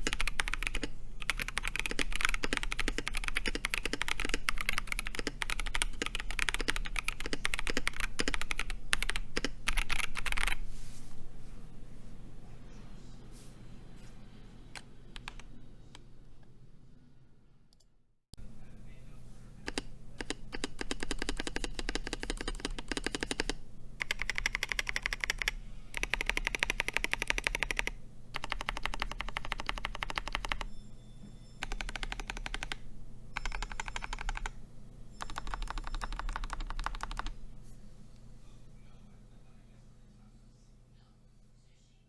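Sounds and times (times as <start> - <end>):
mechanical keyboard typing: 0.0 - 10.6, 14.8 - 15.5, 19.6 - 30.7, 31.6 - 32.8, 33.4 - 34.6, 35.2 - 37.4.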